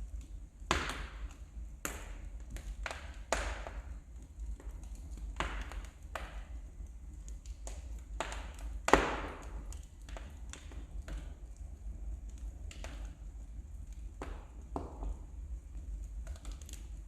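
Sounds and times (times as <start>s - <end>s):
steady low hum: 0.0s - 17.0s
wood fire crackling and popping: 0.0s - 17.0s.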